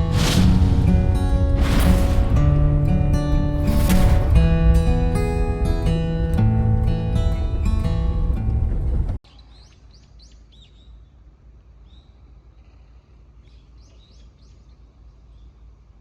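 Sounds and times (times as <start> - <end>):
acoustic guitar music: 0.0 - 9.2
low outdoor rumble: 0.0 - 9.2
small birds chirping: 9.2 - 16.0.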